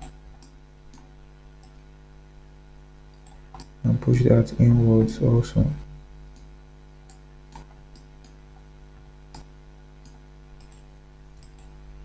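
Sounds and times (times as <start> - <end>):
computer mouse and keyboard clicks: 0.0 - 1.8, 3.1 - 3.8, 6.3 - 8.7, 9.3 - 11.8
low electrical hum: 0.0 - 12.0.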